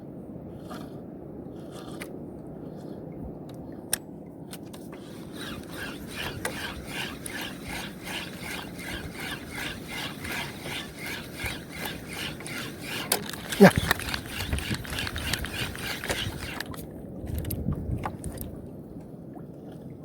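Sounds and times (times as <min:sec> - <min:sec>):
spinning reel being cranked: 0:05.0 - 0:16.8
sharp clicks: 0:09.9 - 0:16.8.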